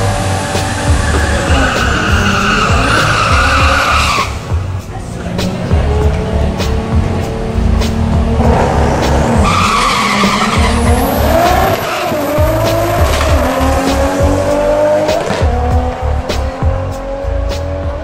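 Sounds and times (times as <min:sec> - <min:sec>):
car engine accelerating hard: 0:00.0 - 0:04.6, 0:05.2 - 0:18.0
music with steady beat: 0:00.0 - 0:18.0
tyre squeal: 0:00.8 - 0:04.4, 0:09.4 - 0:12.4.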